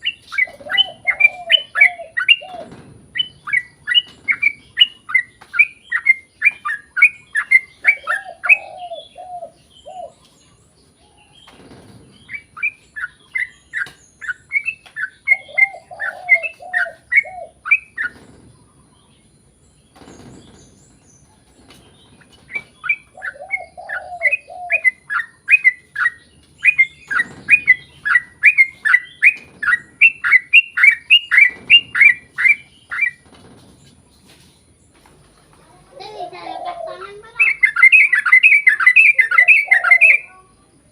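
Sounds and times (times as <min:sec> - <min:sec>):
low warbled bird phrase: 0:36.0 - 0:40.9.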